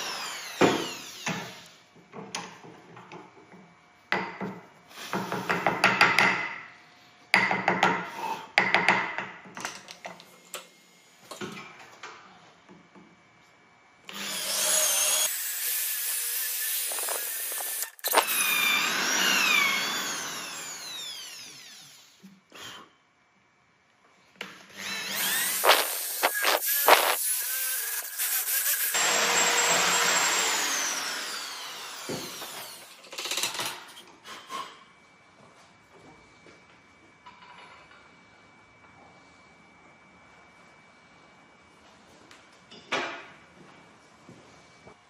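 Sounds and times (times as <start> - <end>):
power tool whining: 0.0 - 1.8, 14.1 - 22.8, 24.7 - 33.0.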